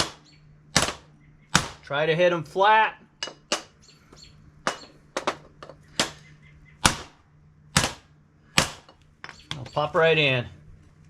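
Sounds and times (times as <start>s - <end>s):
hammer striking metal: 3.2s - 3.8s, 4.6s - 6.2s.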